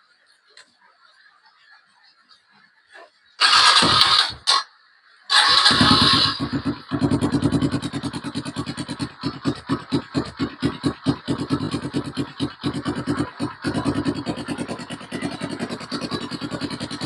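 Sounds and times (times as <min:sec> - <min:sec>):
motorcycle engine cranking: 0:03.4 - 0:04.6, 0:05.3 - 0:17.0
engine idling unevenly: 0:05.4 - 0:17.0.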